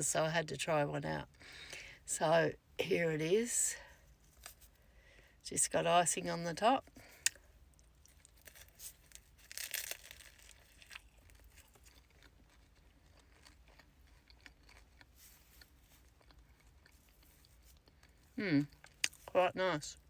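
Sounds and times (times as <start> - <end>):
wrapper crinkling and tearing: 8.1 - 12.2
wrapper rustle: 8.3 - 11.9.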